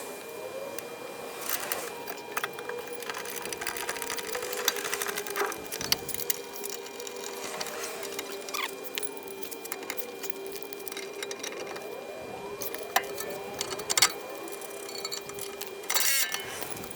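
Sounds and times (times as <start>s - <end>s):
metal tools clinking: 1.5s - 12.0s, 12.6s - 16.9s.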